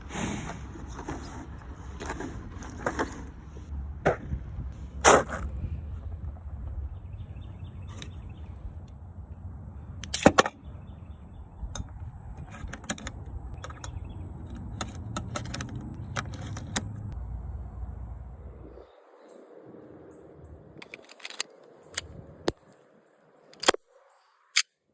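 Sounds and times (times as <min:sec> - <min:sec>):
low steady rumble: 0:00.0 - 0:19.0
light metallic clicks: 0:11.7 - 0:17.2.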